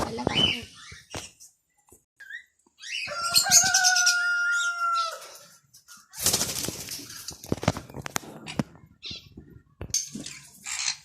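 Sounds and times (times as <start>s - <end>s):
rooster crowing: 3.1s - 5.4s
wings flapping: 6.0s - 8.7s.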